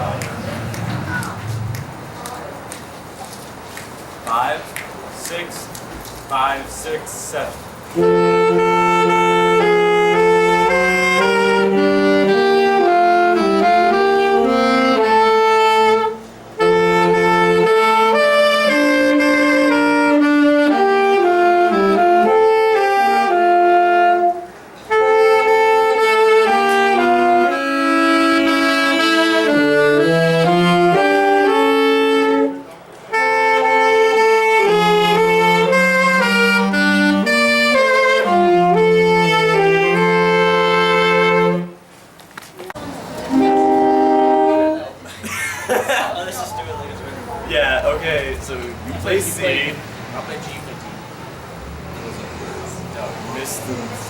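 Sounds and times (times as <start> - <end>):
person counting off: 4.3 - 5.7, 6.3 - 7.6
wind ensemble playing slow chords: 6.4 - 41.8, 42.9 - 45.1.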